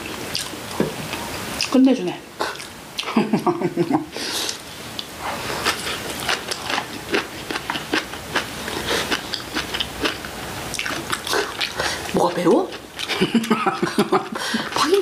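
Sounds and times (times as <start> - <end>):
wet crunchy chewing: 4.5 - 12.1.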